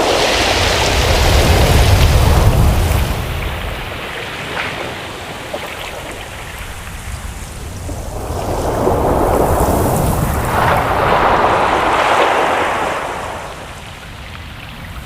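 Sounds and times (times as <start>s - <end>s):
low surf hiss: 5.9s - 15.0s
wave rushing in: 7.0s - 14.3s.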